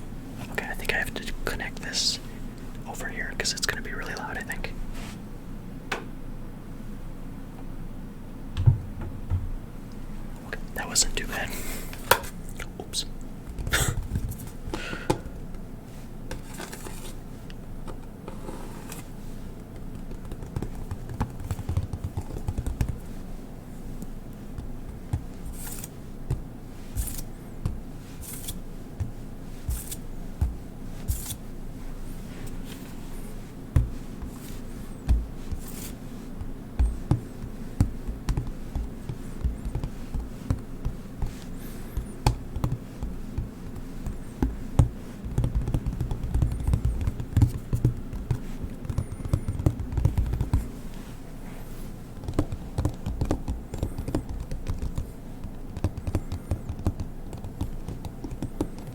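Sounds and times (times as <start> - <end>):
low handling thumps: 8.5 - 9.9
taps and knocks: 8.6 - 9.6, 35.0 - 35.3, 36.8 - 41.3, 52.2 - 58.9.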